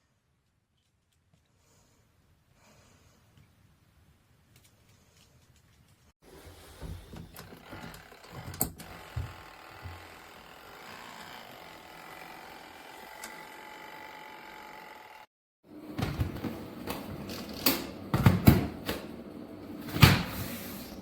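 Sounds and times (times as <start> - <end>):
washing machine motor hum: 6.3 - 21.0
washing machine knocks and thumps: 18.1 - 19.0.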